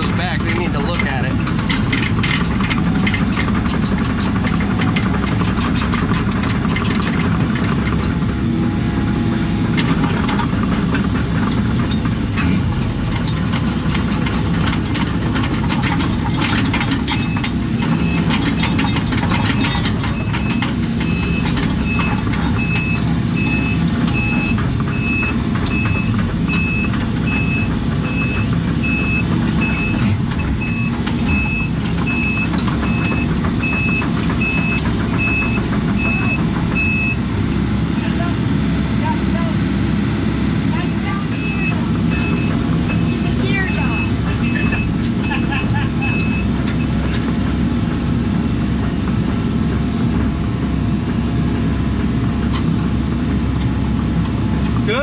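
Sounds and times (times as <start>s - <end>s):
metal clanks and knocks: 0.0s - 8.9s, 9.6s - 37.5s, 40.8s - 55.0s
diesel engine running: 0.0s - 55.0s
backup alarm beeping: 19.6s - 37.2s, 41.4s - 47.0s.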